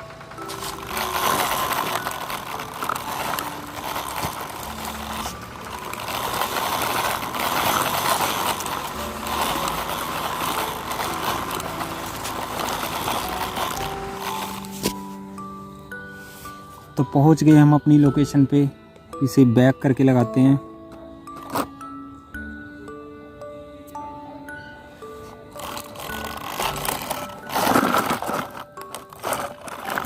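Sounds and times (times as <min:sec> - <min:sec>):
toy vehicles rolling rattling: 0:00.0 - 0:15.0, 0:21.4 - 0:21.7, 0:25.5 - 0:30.0.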